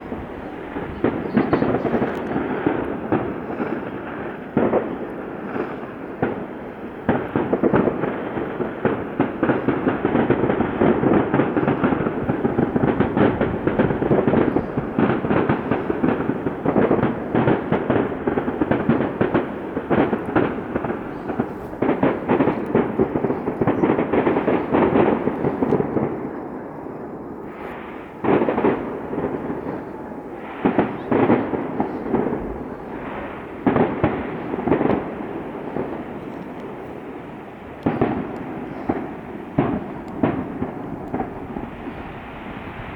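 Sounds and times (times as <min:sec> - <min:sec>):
fireworks bursts and crackles: 0:00.0 - 0:42.9.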